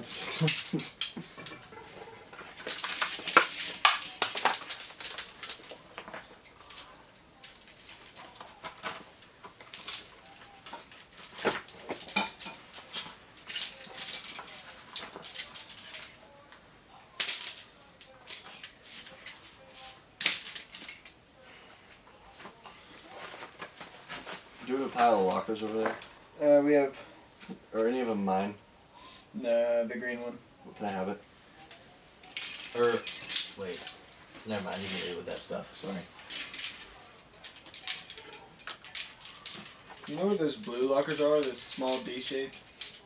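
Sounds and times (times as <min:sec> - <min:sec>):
metal climbing gear clinking: 0:00.0 - 0:08.8, 0:09.7 - 0:16.2, 0:32.2 - 0:43.0.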